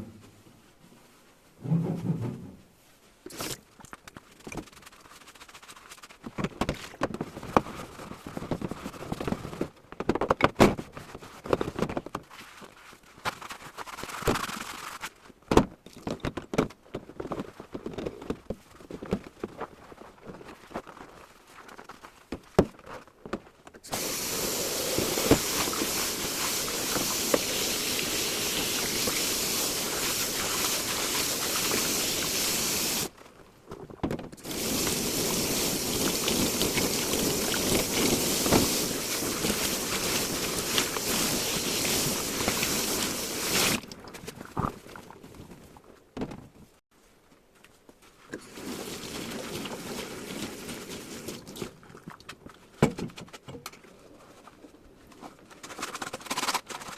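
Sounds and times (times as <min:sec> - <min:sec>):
tap water running: 0:23.9 - 0:33.1, 0:34.4 - 0:44.0, 0:48.4 - 0:51.6.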